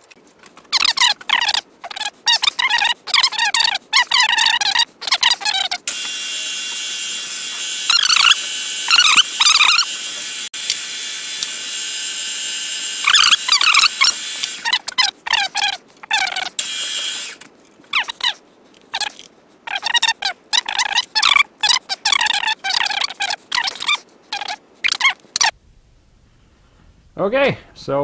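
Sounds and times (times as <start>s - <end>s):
high-pitched wavering squeals: 0.8s - 10.5s, 11.9s - 18.4s
machine tool drilling steel: 5.9s - 14.9s, 16.6s - 17.4s.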